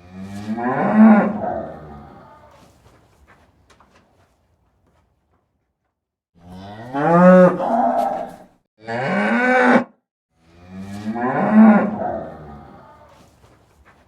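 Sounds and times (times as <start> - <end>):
cow mooing: 0.0 - 2.5, 6.4 - 13.2.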